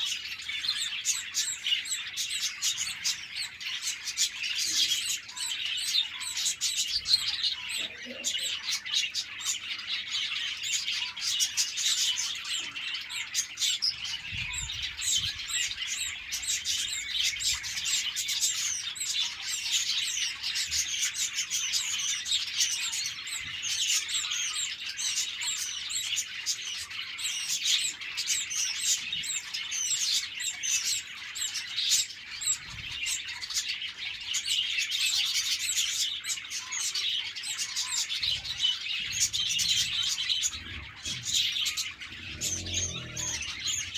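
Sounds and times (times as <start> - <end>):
flock of budgerigars chirping: 0.0 - 43.9.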